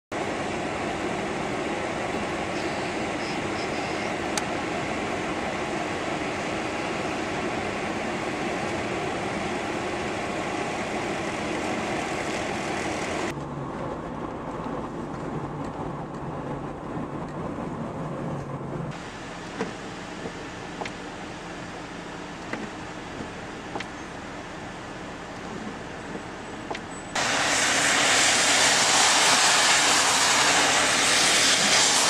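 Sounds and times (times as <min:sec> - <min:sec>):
engine hum with low tone: 0:00.1 - 0:32.0
loud rough rushing: 0:27.2 - 0:32.0.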